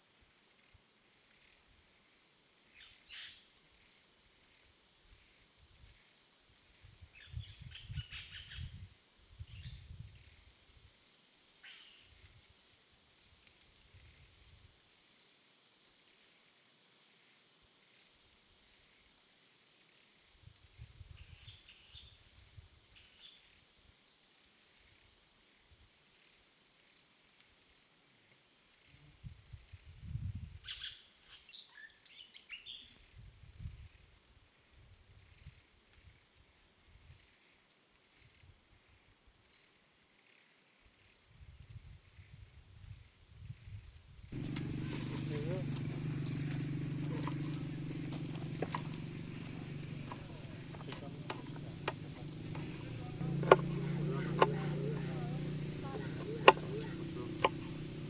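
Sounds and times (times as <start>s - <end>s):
birds chirping: 44.4s - 58.0s
low rumbles: 44.4s - 58.0s.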